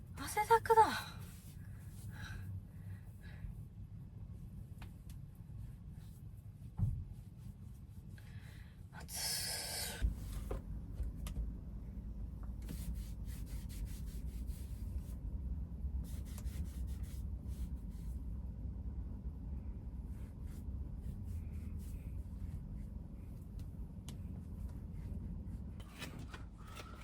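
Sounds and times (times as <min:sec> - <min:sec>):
thump: 0:06.8 - 0:07.1
low rumble: 0:14.6 - 0:16.1, 0:17.2 - 0:25.8.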